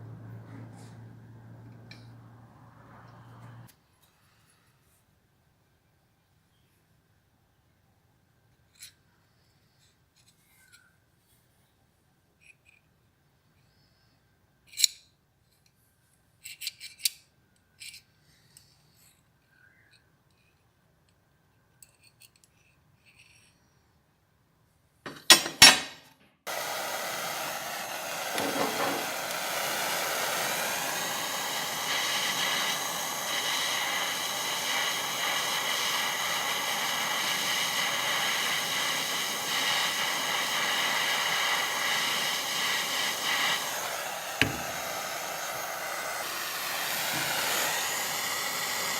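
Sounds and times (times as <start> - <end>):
small electric power tool whining: 26.5 - 48.9.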